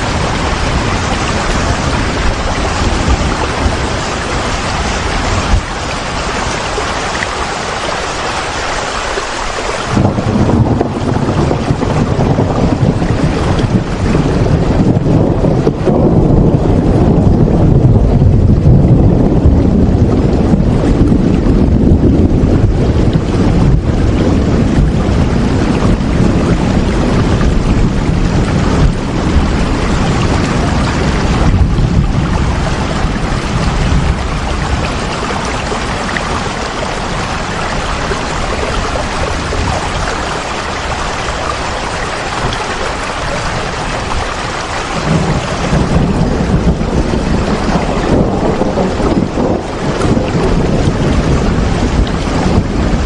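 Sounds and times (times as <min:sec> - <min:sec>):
steady rain hiss: 0:00.0 - 0:17.6, 0:19.3 - 0:53.0
low rumble: 0:09.9 - 0:53.0.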